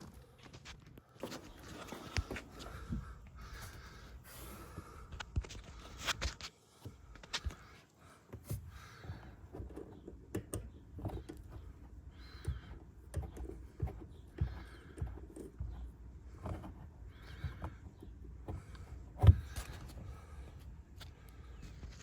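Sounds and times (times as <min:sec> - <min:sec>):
light clicks and knocks: 0:04.8 - 0:20.4.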